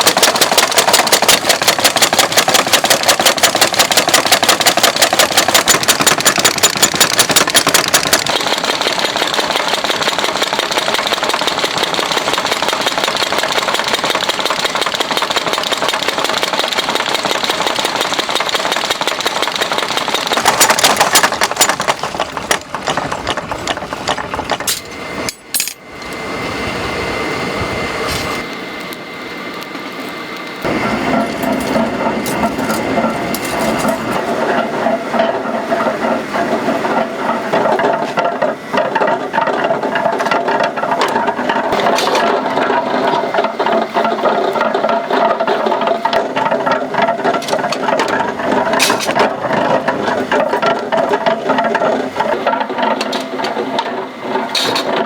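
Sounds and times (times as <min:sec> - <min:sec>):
machinery hammering metal: 0:00.0 - 0:25.9, 0:30.7 - 0:36.0
machine running noise: 0:00.0 - 0:55.0
metal clanks: 0:20.2 - 0:25.9, 0:30.8 - 0:35.9, 0:37.6 - 0:55.0.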